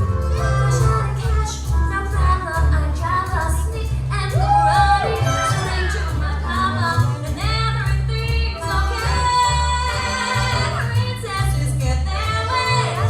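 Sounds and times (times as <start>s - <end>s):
music with singing and heavy bass: 0.0s - 13.0s.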